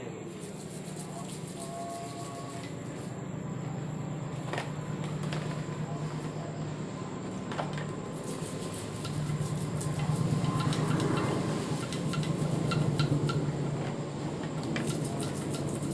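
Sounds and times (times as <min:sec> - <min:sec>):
rapid scrubbing strokes: 0:00.0 - 0:03.2, 0:08.0 - 0:15.9
steady low hum: 0:00.0 - 0:15.9.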